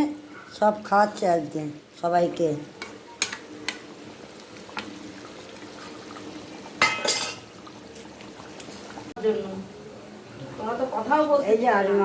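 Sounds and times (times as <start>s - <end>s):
metal utensils clicking on pot: 2.8s - 3.9s, 6.8s - 7.5s.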